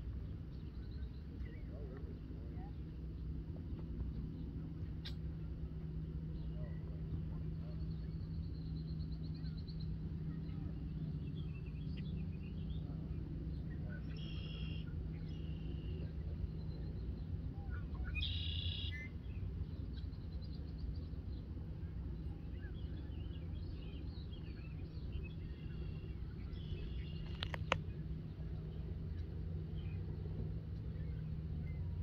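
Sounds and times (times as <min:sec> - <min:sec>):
steady low rumble: 0:00.0 - 0:32.0
faint bird chirps: 0:06.4 - 0:21.0
sharp click: 0:27.2 - 0:27.8.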